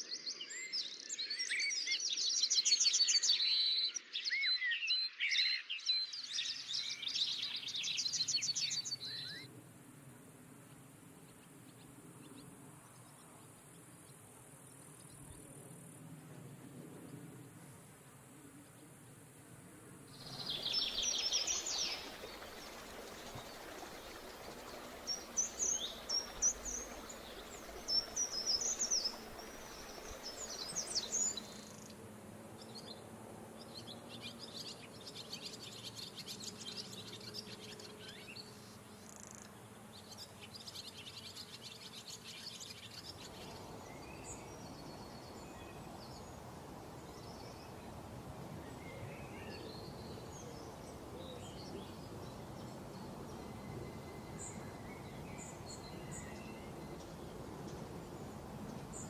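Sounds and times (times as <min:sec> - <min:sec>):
small birds chirping: 0:20.1 - 0:32.0.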